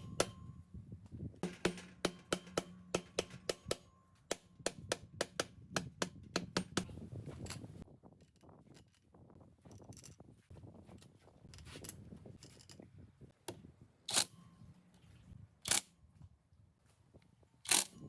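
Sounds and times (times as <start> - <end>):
hammer tapping on engine part: 1.4 - 6.9.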